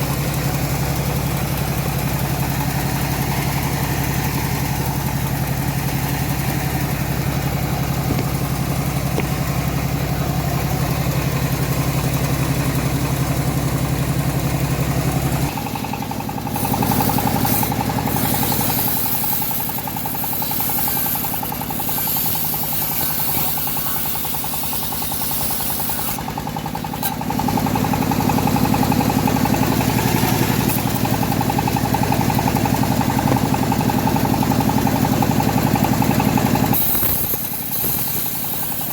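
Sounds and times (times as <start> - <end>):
engine-driven bandsaw running: 0.0 - 38.9
saw blade ripping through wood: 16.5 - 26.2, 29.9 - 31.1, 36.7 - 38.9.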